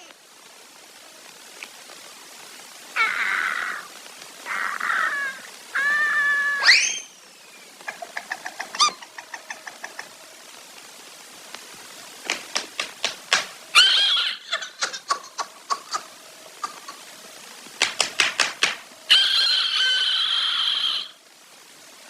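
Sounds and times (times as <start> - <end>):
animal's drawn-out pitched calls: 3.0 - 7.2, 7.8 - 10.2, 13.7 - 17.2, 19.1 - 21.2.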